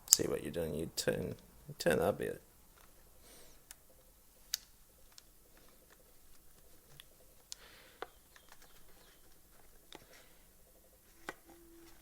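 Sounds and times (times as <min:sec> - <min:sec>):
small plastic parts clicking: 0:03.6 - 0:10.2.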